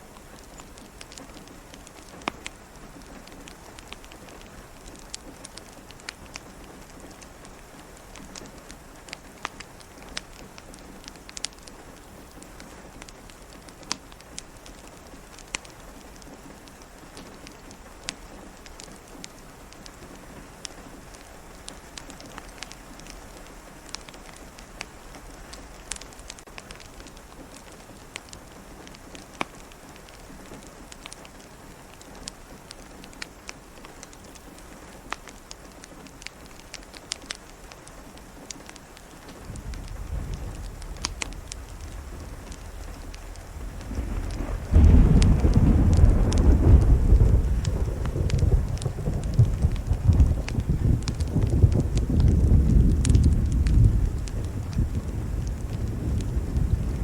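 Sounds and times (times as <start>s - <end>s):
rain pattering: 0.0s - 57.0s
wood fire crackling: 0.0s - 57.0s.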